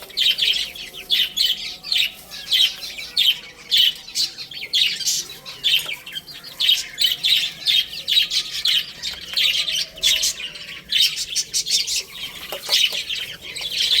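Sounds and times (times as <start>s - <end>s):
baby chicks chirping: 0.0s - 14.0s.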